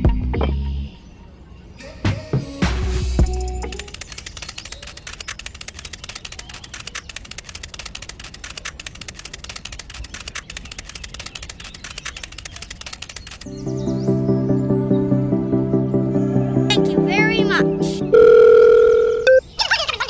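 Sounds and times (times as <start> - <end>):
small bricks clicking in sand: 3.8 - 13.5.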